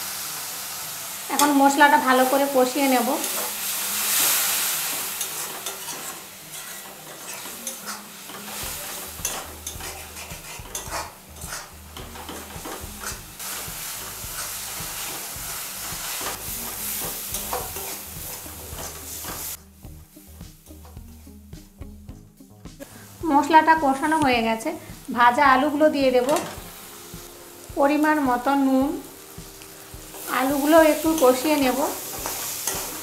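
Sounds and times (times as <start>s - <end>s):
spices sizzling in hot oil: 0.0s - 33.0s
metal spatula scraping a pan: 3.0s - 19.6s, 30.1s - 33.0s.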